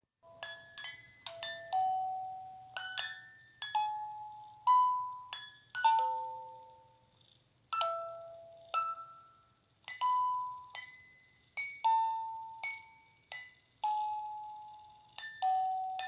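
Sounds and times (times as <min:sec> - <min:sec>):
bell-like chime melody: 0:00.2 - 0:06.9, 0:10.0 - 0:16.0.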